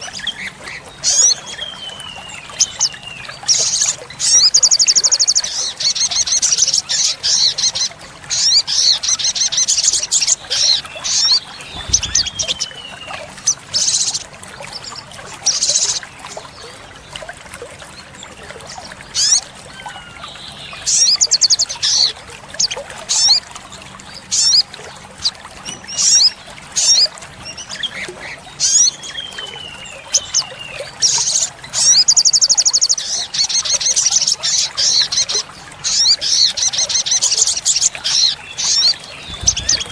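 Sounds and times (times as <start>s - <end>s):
bird trilling and chirping: 3.5s - 14.2s, 28.6s - 39.9s.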